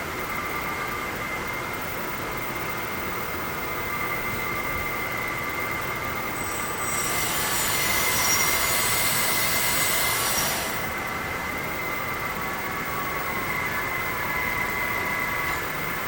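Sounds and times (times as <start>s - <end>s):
hiss with high squealing: 6.1s - 11.0s
hydraulic system whining: 6.2s - 11.2s.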